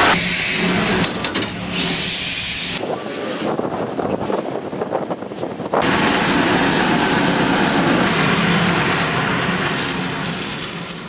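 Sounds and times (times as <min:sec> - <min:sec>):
train wheels clicking over rail joints: 0:00.0 - 0:06.6
rushing train noise: 0:00.0 - 0:11.0.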